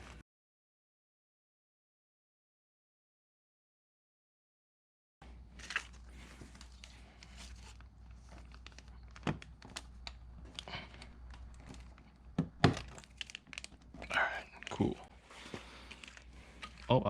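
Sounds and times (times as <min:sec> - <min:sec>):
pick tools clicking and scraping plastic: 0:06.4 - 0:17.0.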